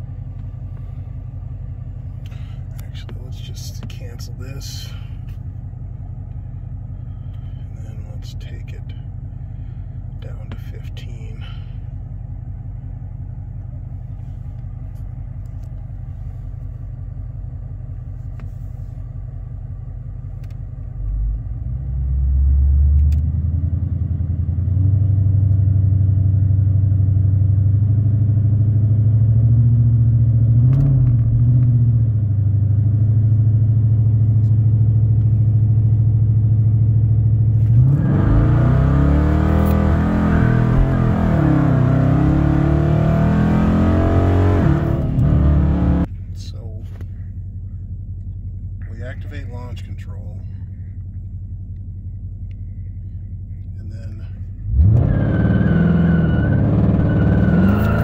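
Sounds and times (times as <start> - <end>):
car engine idling and revving: 0.0 - 58.0
engine accelerating hard: 20.4 - 46.1, 53.8 - 58.0.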